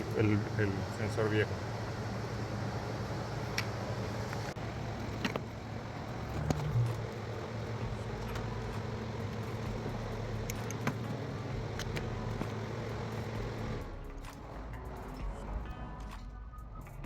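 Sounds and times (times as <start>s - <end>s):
light clicks of parts: 10.4s - 11.1s.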